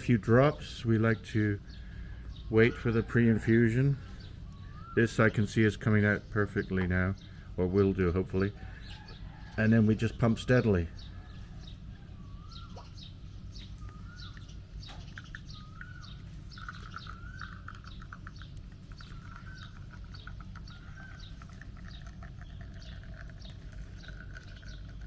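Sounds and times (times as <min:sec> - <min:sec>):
birds warbling: 0:00.0 - 0:25.0
low steady rumble: 0:00.0 - 0:25.0.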